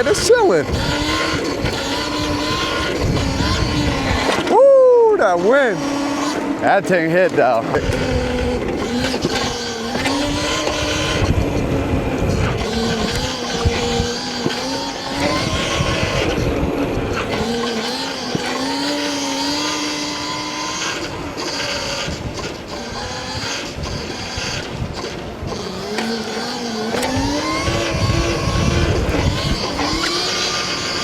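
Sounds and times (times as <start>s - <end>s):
electric motor whining: 0.0s - 31.0s
wind buffeting microphone: 0.0s - 31.0s.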